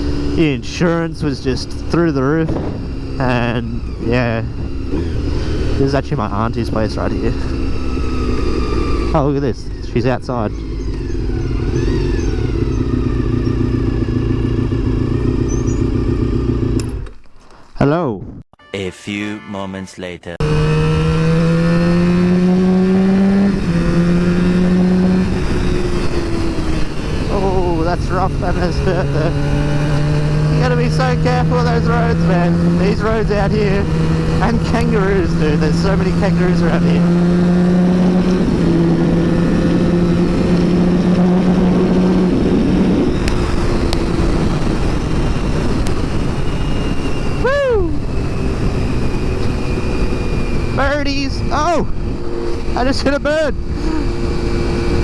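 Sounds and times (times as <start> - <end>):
motorcycle engine accelerating: 0.0 - 17.2, 20.4 - 55.0
wind rushing over microphone: 37.0 - 55.0.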